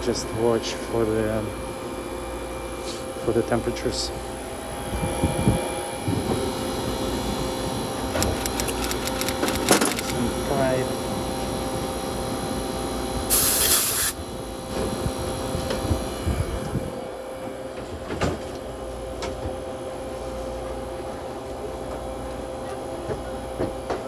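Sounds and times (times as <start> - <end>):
refrigeration unit humming: 0.0 - 24.0
refrigerant hiss: 13.3 - 14.2.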